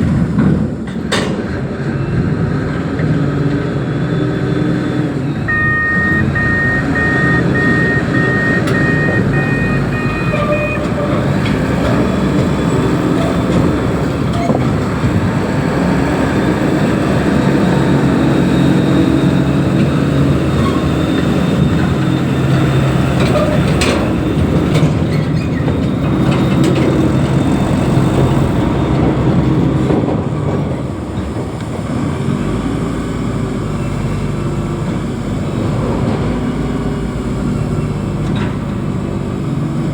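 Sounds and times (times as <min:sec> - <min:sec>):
heavy diesel engine running: 0:01.6 - 0:39.9
reversing alarm beeping: 0:05.1 - 0:11.4.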